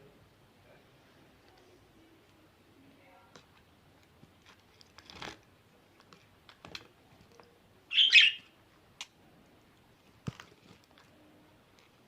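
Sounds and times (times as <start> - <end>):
budgerigar chirping: 7.9 - 8.5.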